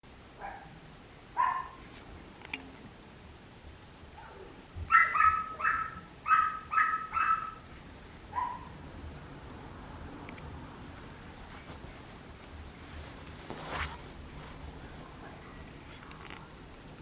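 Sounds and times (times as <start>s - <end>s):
puppy yapping: 1.4s - 1.8s, 4.2s - 7.7s, 8.4s - 8.7s.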